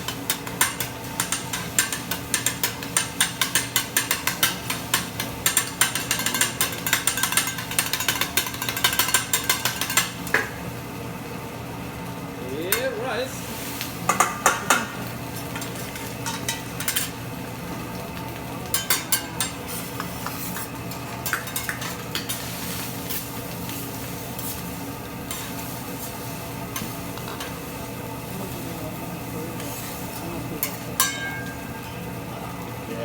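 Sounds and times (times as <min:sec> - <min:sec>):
food sizzling on griddle: 0:00.0 - 0:33.0
metal spatulas clacking and scraping: 0:00.1 - 0:10.2, 0:15.6 - 0:17.1, 0:18.7 - 0:22.4.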